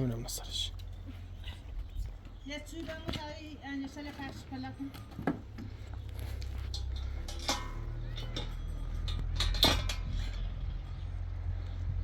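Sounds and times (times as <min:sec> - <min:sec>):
steady low rumble: 0:05.0 - 0:12.0.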